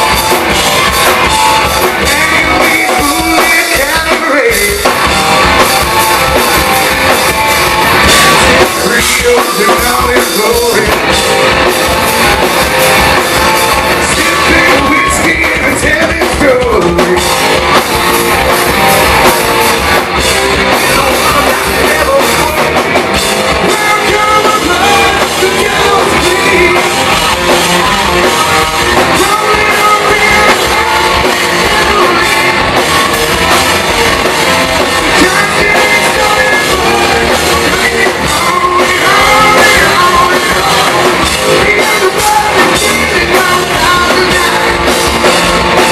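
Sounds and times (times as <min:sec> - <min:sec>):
distorted electric guitars: 0:00.0 - 0:45.9
drum kit: 0:00.0 - 0:45.9
man singing lead vocal: 0:01.3 - 0:05.1, 0:08.0 - 0:11.4, 0:13.2 - 0:17.9, 0:20.3 - 0:33.2, 0:34.3 - 0:45.9.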